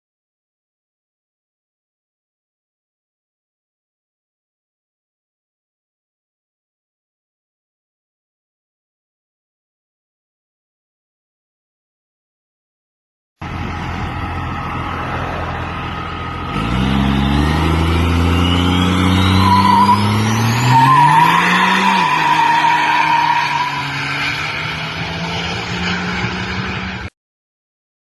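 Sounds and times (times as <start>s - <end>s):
truck engine revving: 13.4s - 27.1s
tyres squealing: 16.9s - 24.9s
whistle rising in pitch: 18.0s - 24.0s.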